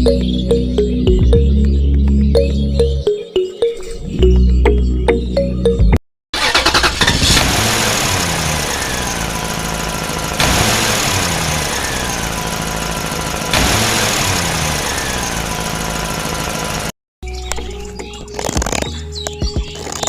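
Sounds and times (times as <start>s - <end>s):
tractor engine running: 6.4s - 16.9s.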